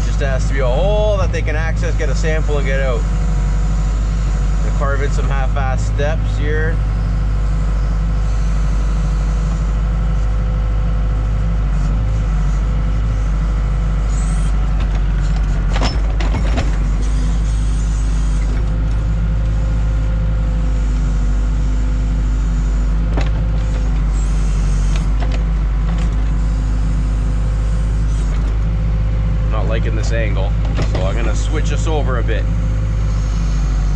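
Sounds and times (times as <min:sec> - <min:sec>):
backhoe diesel engine running: 0:00.0 - 0:33.9.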